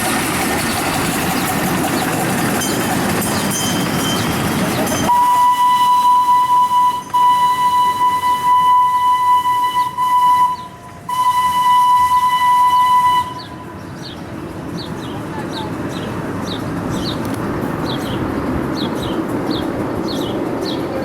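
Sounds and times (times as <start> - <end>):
train whistle blowing: 5.0 - 13.8.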